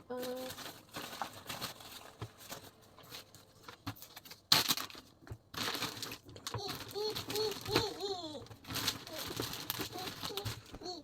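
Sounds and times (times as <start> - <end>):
plastic bags crinkling: 0.1 - 11.0
small child vocalizing: 6.5 - 8.5, 9.1 - 11.0.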